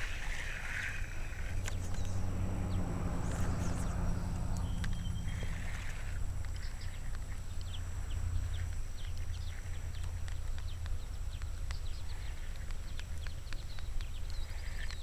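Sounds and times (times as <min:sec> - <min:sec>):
small birds chirping: 0:00.0 - 0:15.0
steady low rumble: 0:00.0 - 0:15.0
sharp clicks: 0:03.2 - 0:15.0.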